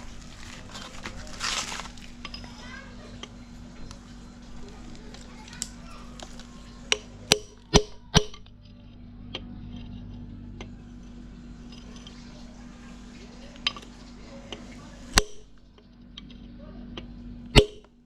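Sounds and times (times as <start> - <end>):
metal tools clinking: 0.0 - 2.8
steady low hum: 0.0 - 18.0.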